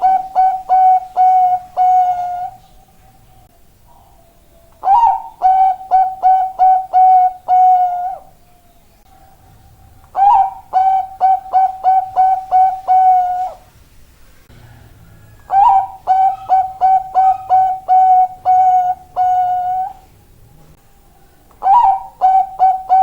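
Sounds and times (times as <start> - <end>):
dove cooing: 0.0 - 2.7, 3.9 - 8.4, 9.0 - 13.7, 14.6 - 20.2, 21.2 - 23.0.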